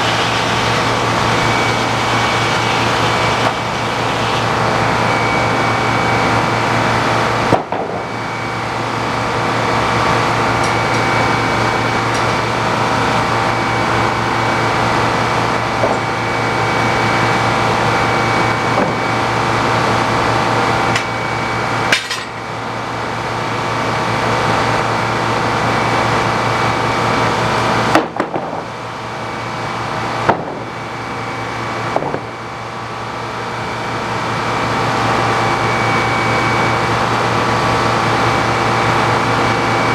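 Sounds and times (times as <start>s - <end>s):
sawmill engine hum: 0.0s - 27.8s.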